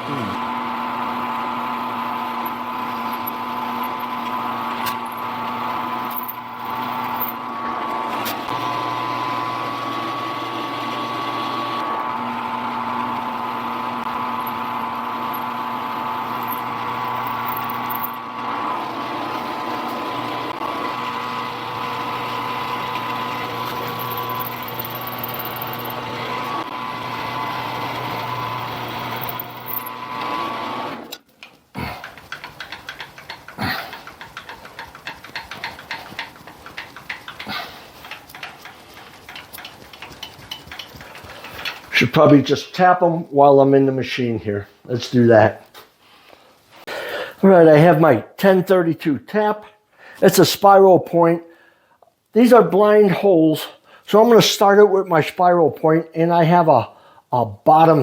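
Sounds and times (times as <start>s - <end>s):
drill press motor humming: 0.0s - 42.0s.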